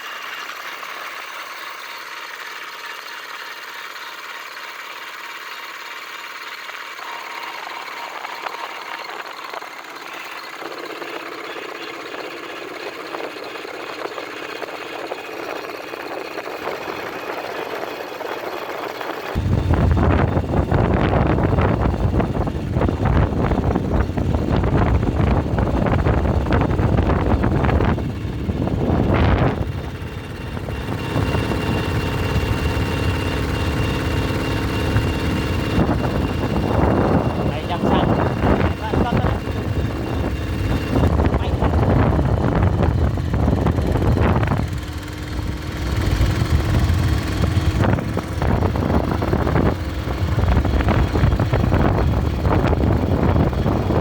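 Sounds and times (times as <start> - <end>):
bulldozer engine running: 0.0 - 54.0
faint high whine: 19.4 - 53.9.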